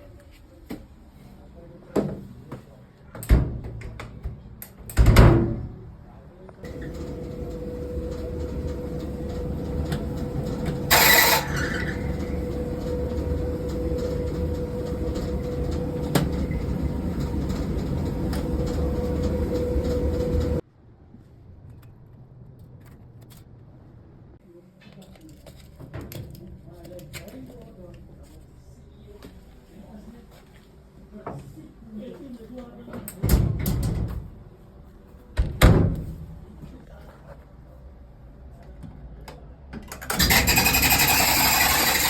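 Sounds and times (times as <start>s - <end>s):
dryer rasp: 6.7s - 20.6s, 40.1s - 42.0s
tumble dryer humming: 6.7s - 20.6s.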